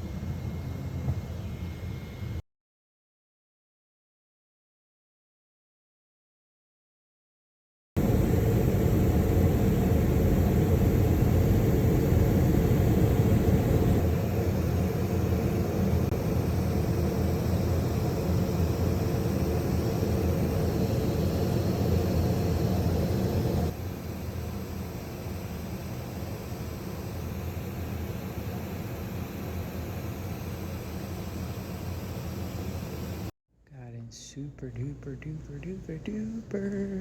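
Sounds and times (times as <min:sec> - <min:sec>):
vehicle running rumble and hiss: 0:08.0 - 0:23.8.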